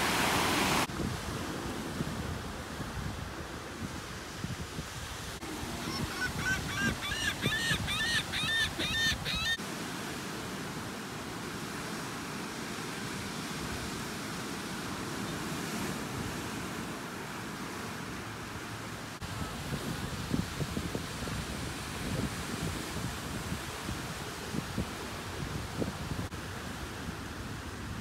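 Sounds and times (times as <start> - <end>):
ocean waves breaking: 0.0 - 28.0
wind: 0.0 - 28.0
bird calling arched notes: 5.6 - 9.6.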